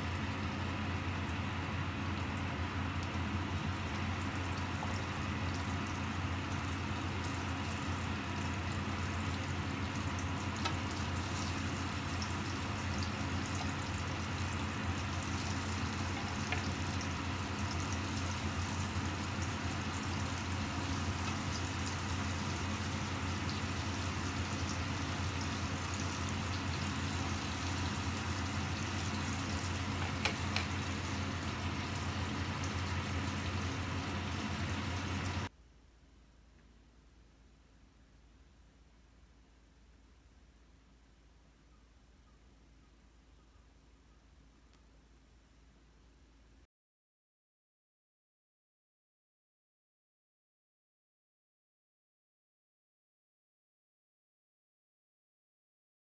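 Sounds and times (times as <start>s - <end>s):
chicken sizzling in hot oil: 0.0s - 35.5s
steady low hum: 0.0s - 46.7s.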